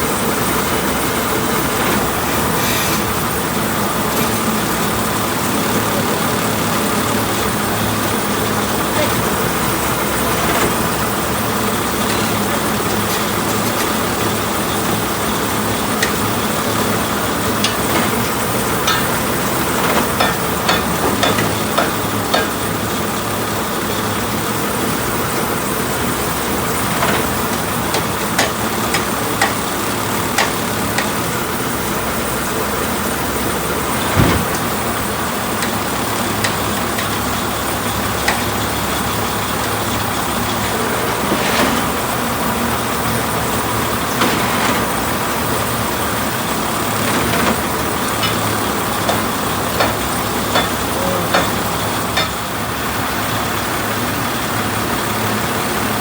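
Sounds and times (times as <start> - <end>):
truck engine running: 0.0 - 56.0
sharp clicks and knocks: 17.6 - 22.8.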